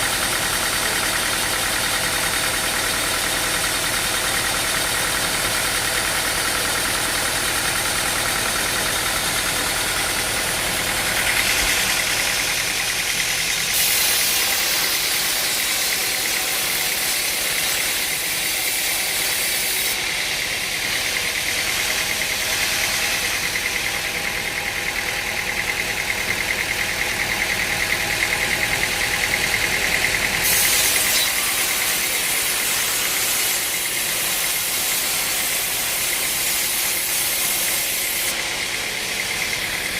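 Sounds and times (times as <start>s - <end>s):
machinery engine knocking: 0.0s - 13.7s, 20.0s - 22.5s, 23.2s - 30.4s, 38.3s - 39.9s
hiss: 10.7s - 20.0s, 30.4s - 39.4s.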